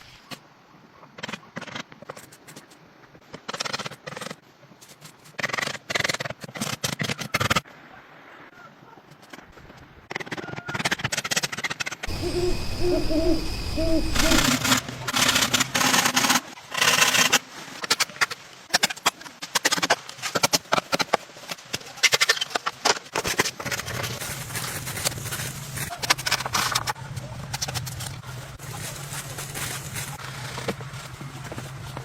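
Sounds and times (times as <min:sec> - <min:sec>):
low hooting calls: 0:12.1 - 0:15.1.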